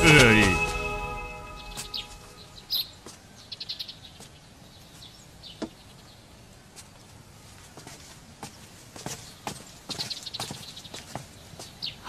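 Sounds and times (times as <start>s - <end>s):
birds chirping: 0.0s - 6.4s, 9.2s - 12.0s.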